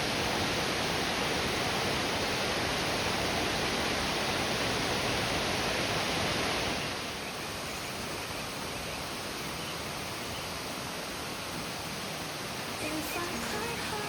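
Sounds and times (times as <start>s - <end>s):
flowing water rushing: 0.0s - 14.0s.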